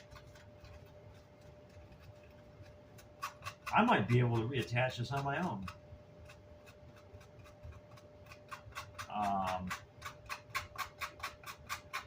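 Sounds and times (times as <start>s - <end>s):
scratchy scrubbing of grill cloth: 0.0s - 11.9s
faint steady whine: 0.0s - 12.0s.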